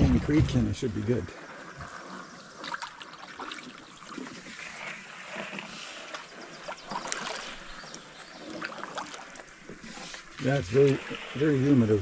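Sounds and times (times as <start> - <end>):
canoe paddle dips: 0.0 - 12.0
light knocks and splashes: 1.8 - 11.3.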